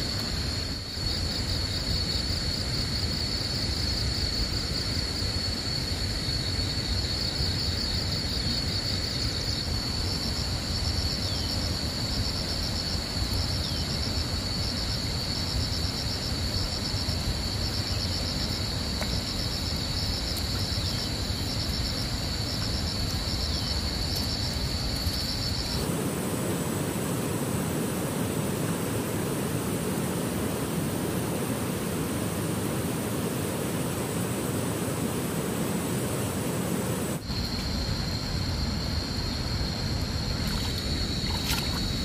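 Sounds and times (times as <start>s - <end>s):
insects trilling: 0.0s - 42.0s
broad rushing noise: 25.7s - 37.4s.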